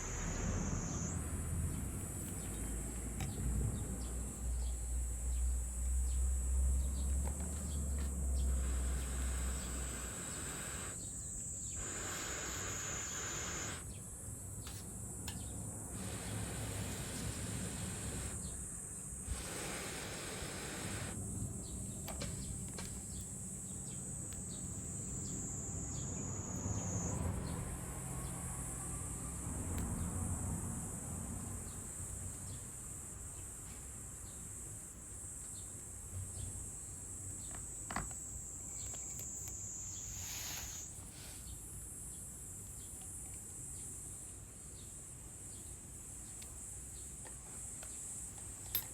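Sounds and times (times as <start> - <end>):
insects shrilling: 0.0 - 3.2, 4.3 - 14.0, 15.8 - 27.6, 38.7 - 41.3.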